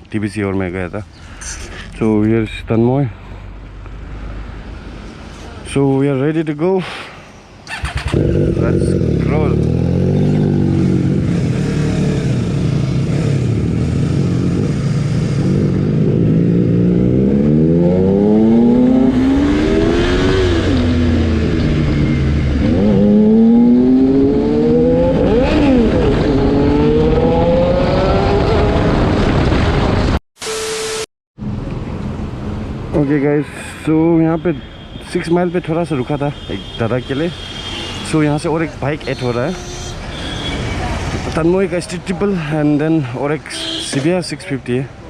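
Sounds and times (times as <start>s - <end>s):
road and wind noise: 0.0s - 30.2s, 31.4s - 45.0s
motorcycle engine accelerating: 7.7s - 30.2s
brief steady tone: 30.4s - 31.1s.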